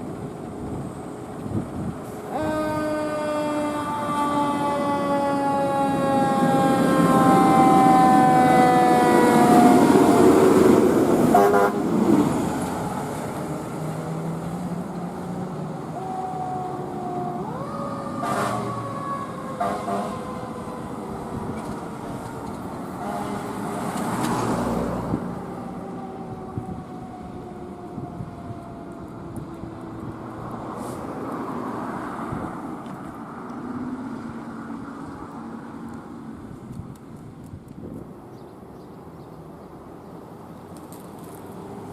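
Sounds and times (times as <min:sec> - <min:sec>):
traffic noise: 0:00.0 - 0:41.9
siren wailing: 0:02.3 - 0:11.8, 0:14.9 - 0:22.2, 0:25.1 - 0:30.4
short horn blasts: 0:11.3 - 0:11.8, 0:18.2 - 0:18.7, 0:23.0 - 0:23.6.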